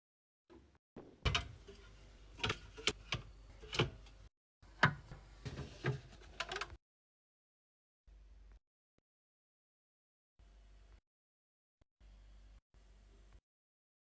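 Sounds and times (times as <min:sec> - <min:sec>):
hard items clicking and knocking: 0:01.0 - 0:04.2.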